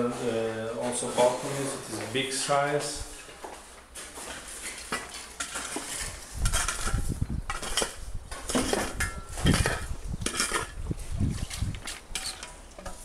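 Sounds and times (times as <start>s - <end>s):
clinks and knocks: 4.9s - 10.8s.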